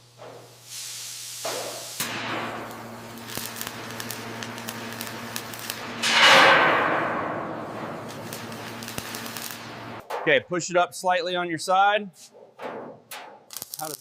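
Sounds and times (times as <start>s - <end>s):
steady machine hum: 2.0s - 10.0s.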